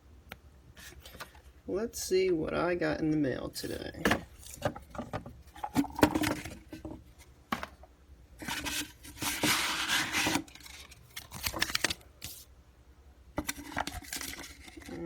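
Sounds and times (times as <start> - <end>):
package handling taps and knocks: 4.0 - 7.9.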